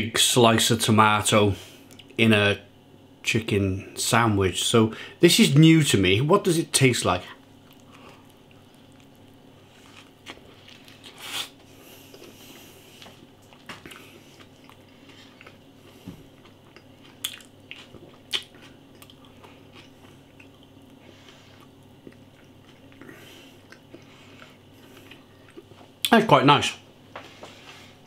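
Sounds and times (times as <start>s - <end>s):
man chewing sandwich: 7.3s - 26.1s.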